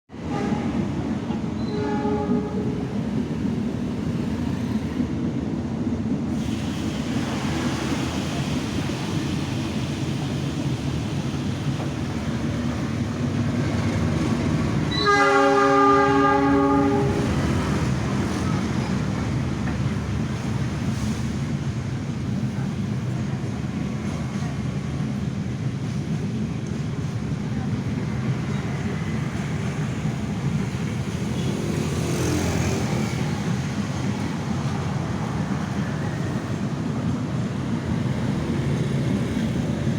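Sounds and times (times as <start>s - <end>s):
train rumbling past: 0.1s - 39.9s
train horn: 0.2s - 0.9s, 1.6s - 2.8s, 14.8s - 17.7s.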